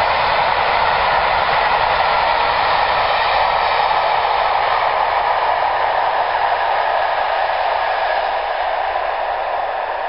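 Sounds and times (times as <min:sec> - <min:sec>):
passing train rushing noise: 0:00.0 - 0:10.0.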